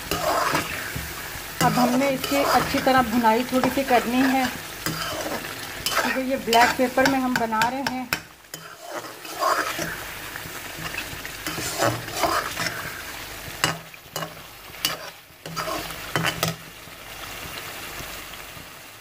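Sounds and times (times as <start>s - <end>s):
metal spoon stirring and scraping: 0.0s - 16.6s
food sizzling in oil: 0.0s - 19.0s
spoon clicking against pan: 6.6s - 8.3s.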